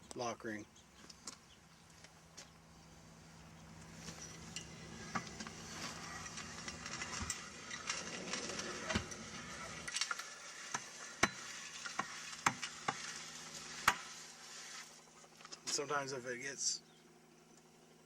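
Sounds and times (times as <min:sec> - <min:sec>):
steady low hum: 0:00.0 - 0:18.0
metal clicking and scraping: 0:03.8 - 0:14.2.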